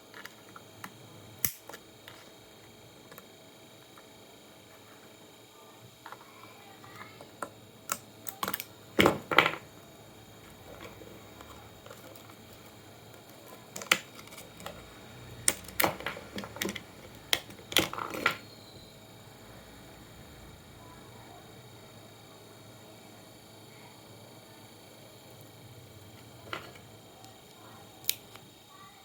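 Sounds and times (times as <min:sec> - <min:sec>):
clicks and knocks of handled parts: 0:15.4 - 0:18.4.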